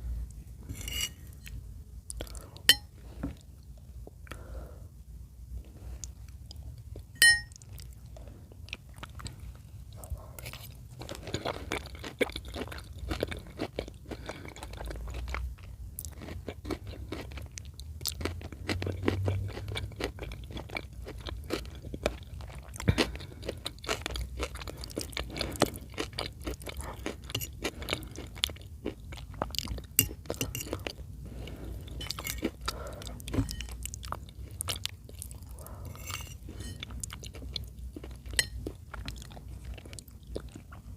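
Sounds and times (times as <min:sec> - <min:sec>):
chewing with mouth clicks: 0:06.0 - 0:40.9
sharp ringing clink: 0:07.2 - 0:07.6.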